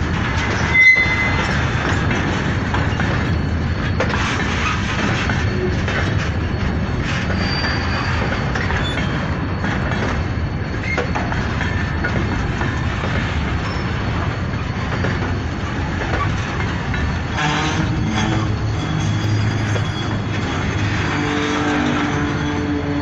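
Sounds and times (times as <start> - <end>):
freight train rumbling: 0.0 - 23.0
wheels clattering on rails: 0.0 - 23.0
faint wheel squeals: 0.5 - 1.6, 7.1 - 9.3, 13.6 - 14.0, 17.2 - 23.0.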